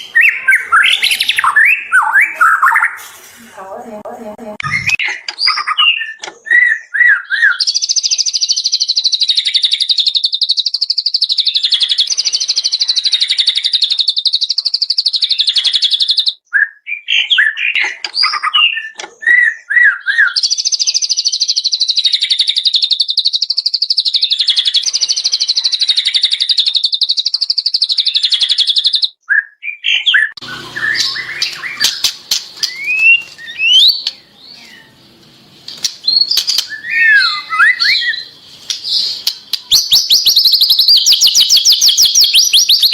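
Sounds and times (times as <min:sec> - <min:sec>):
bird chirps: 0:00.0 - 0:03.0, 0:04.6 - 0:42.9
buzzy bird trill: 0:00.0 - 0:03.0, 0:30.4 - 0:42.9
whistled bird notes: 0:00.0 - 0:03.0, 0:04.6 - 0:35.0, 0:35.8 - 0:42.9
sharp clicks: 0:30.9 - 0:34.2, 0:35.7 - 0:36.9, 0:38.6 - 0:42.2.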